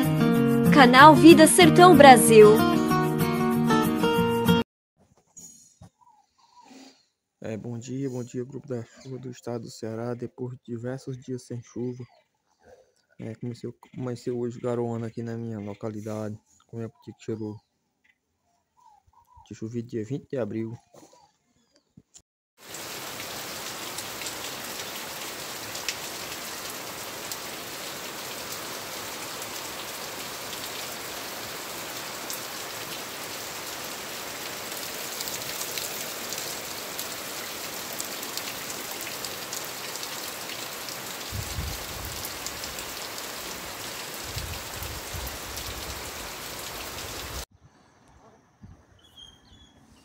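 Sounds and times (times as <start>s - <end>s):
steady rain falling: 22.6s - 47.5s.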